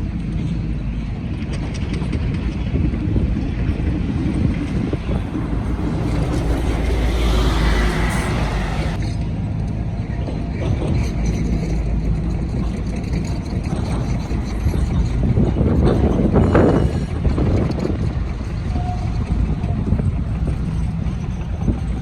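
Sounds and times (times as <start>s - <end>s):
low traffic rumble: 0.0s - 22.0s
large vehicle passing: 3.2s - 9.1s.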